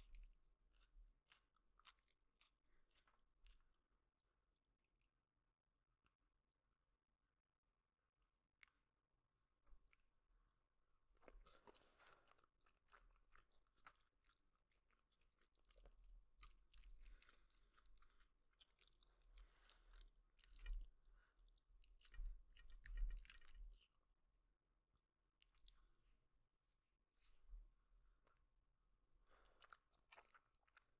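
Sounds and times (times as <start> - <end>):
person chewing noodles: 0.0 - 3.7, 9.9 - 24.1, 29.0 - 30.9.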